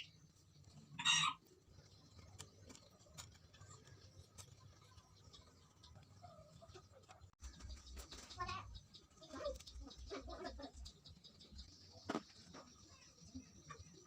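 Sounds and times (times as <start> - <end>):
faint clicks and ticks: 1.5 - 11.7.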